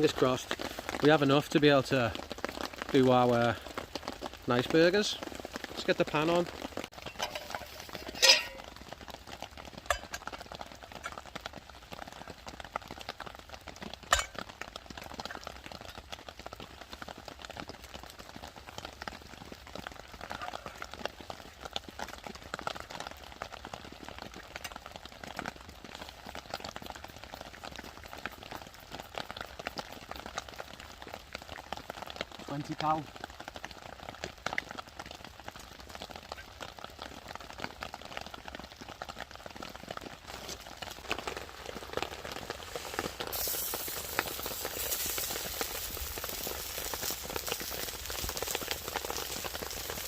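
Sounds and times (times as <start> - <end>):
fire crackling: 0.0 - 50.0
rain pattering: 0.0 - 50.0
metal pan clanking on stove: 7.1 - 8.7.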